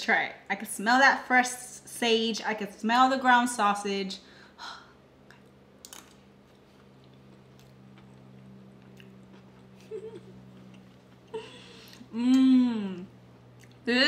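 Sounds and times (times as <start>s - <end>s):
person chewing with mouth closed: 6.6s - 12.4s
closed-mouth hum: 6.7s - 14.0s.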